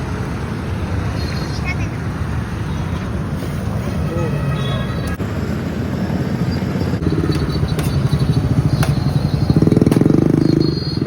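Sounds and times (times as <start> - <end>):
small engine puttering: 7.0 - 11.0.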